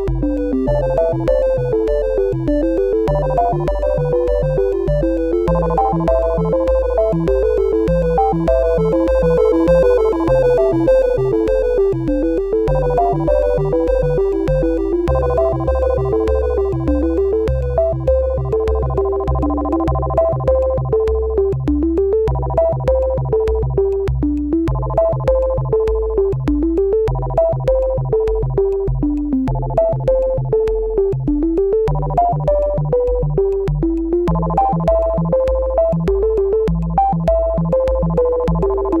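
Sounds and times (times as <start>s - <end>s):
electronic synthesizer music: 0.0s - 22.0s.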